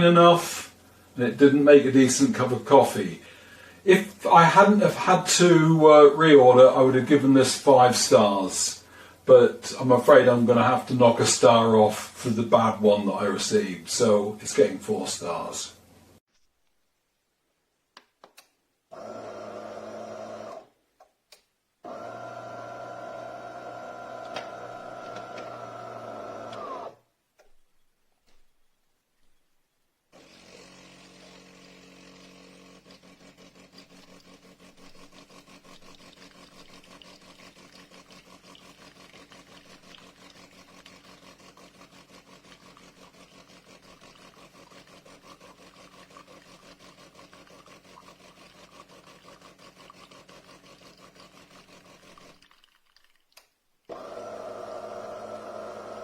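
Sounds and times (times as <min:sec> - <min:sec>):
espresso machine humming: 0:18.9 - 0:20.7, 0:21.8 - 0:27.0, 0:30.2 - 0:52.4, 0:53.9 - 0:56.0.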